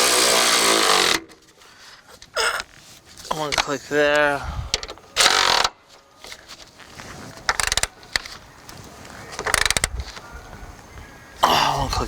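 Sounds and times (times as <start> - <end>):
ratchet wrench clicking: 7.5 - 7.9, 9.4 - 9.9.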